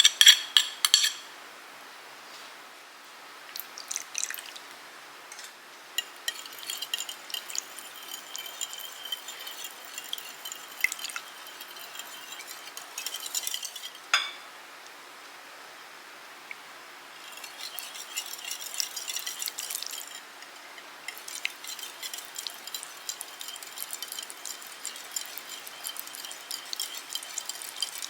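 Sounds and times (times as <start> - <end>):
whisk clinking and scraping in bowl: 0.0 - 1.3, 5.4 - 14.4, 17.1 - 28.0.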